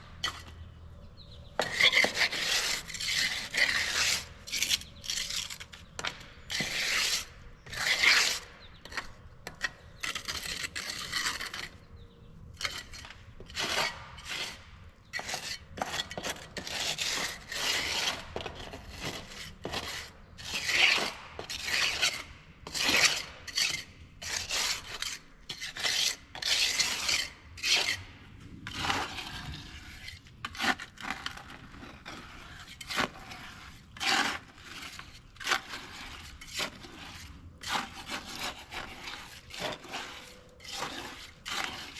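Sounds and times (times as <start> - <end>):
hand tool scraping: 0.1 - 0.6, 1.6 - 11.8, 12.6 - 41.9.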